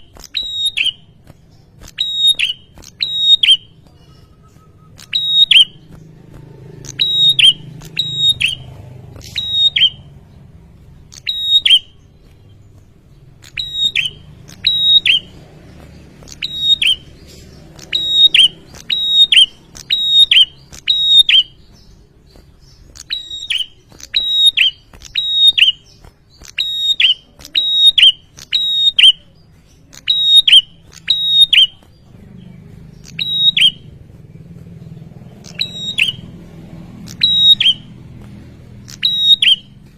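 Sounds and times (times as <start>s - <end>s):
bird calling sharp high notes: 0.0s - 1.2s, 1.8s - 6.0s, 6.8s - 10.1s, 11.1s - 12.1s, 13.4s - 15.4s, 16.2s - 21.9s, 22.6s - 29.3s, 33.0s - 34.0s, 35.4s - 36.3s, 37.0s - 38.0s, 38.8s - 39.9s.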